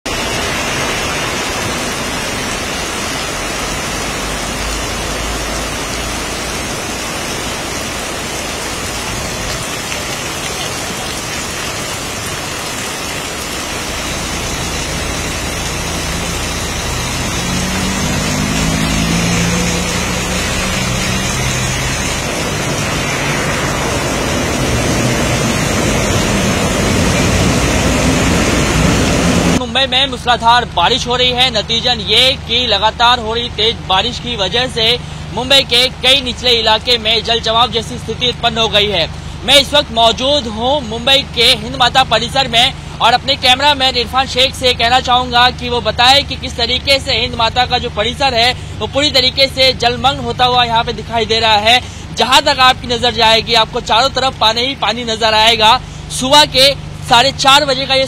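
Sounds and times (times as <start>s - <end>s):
heavy rain pouring on a street: 0.1s - 58.0s
low droning tone: 13.9s - 29.6s.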